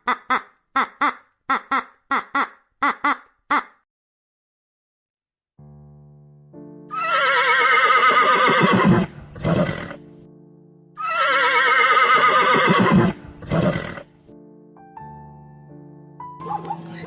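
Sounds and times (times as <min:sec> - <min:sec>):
background music: 0:05.6 - 0:17.0
horse whinnying: 0:06.9 - 0:10.0, 0:11.0 - 0:14.1.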